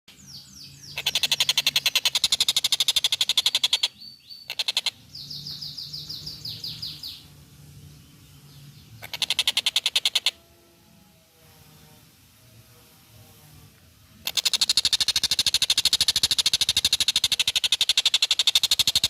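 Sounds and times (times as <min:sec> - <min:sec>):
kingfisher rattling call: 0:00.9 - 0:05.0, 0:09.0 - 0:10.4, 0:14.2 - 0:19.0.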